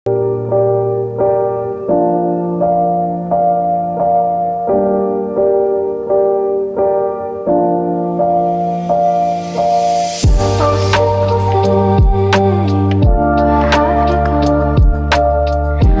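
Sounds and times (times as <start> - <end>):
gentle piano chords: 0.1 - 16.0.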